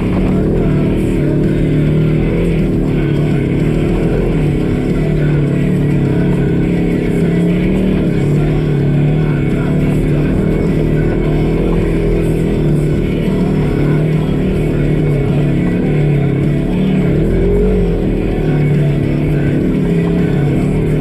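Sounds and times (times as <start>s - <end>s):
engine running under load: 0.0s - 21.0s
guitar music: 0.0s - 21.0s.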